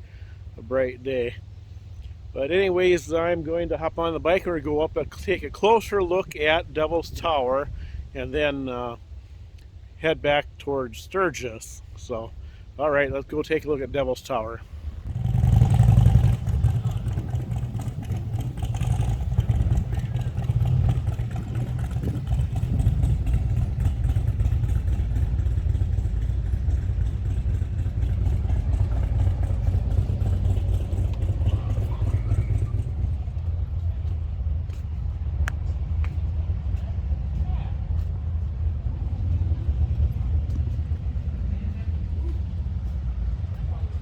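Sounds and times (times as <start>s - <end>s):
motorcycle engine running: 14.7s - 44.0s.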